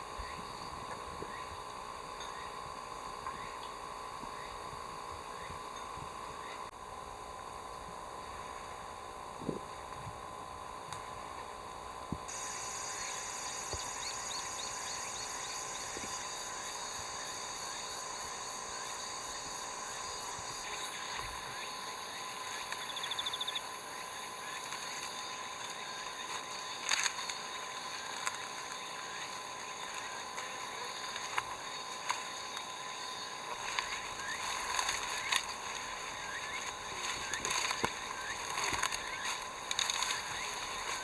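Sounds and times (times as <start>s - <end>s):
insect pulsing trill: 0.0s - 6.7s, 7.7s - 41.0s
insects chorus: 0.0s - 41.0s.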